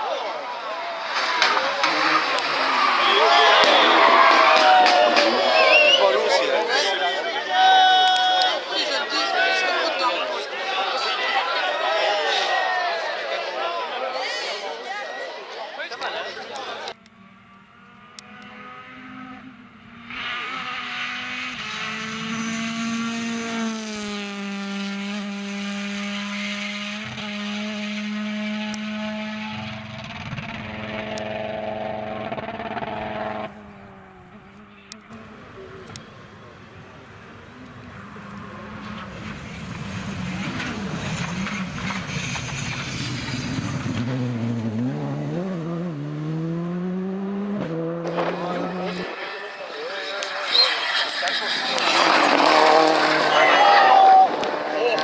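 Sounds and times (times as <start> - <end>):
car engine at high revs: 1.1 - 5.9, 17.0 - 55.0.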